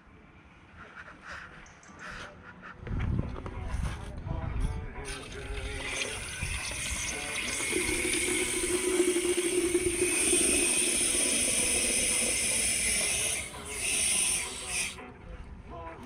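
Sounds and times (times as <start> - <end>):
pressure washer spraying water: 5.8 - 15.0.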